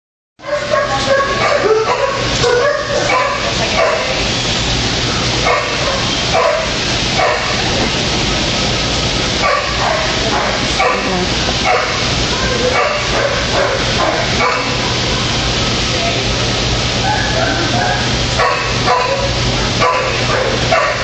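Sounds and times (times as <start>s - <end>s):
puppies yipping and barking: 0.4s - 4.4s, 5.4s - 8.0s, 9.4s - 15.4s, 17.0s - 21.0s
steady low hum: 0.4s - 21.0s.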